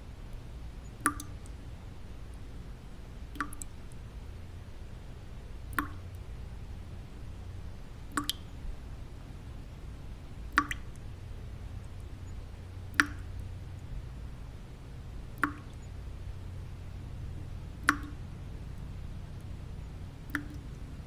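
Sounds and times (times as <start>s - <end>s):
low white-noise rumble: 0.0s - 21.0s
water drops plinking: 1.0s - 1.4s, 3.4s - 3.7s, 5.8s - 6.1s, 8.1s - 8.5s, 10.5s - 11.0s, 12.9s - 13.4s, 15.4s - 15.9s, 17.8s - 18.3s, 20.3s - 20.8s.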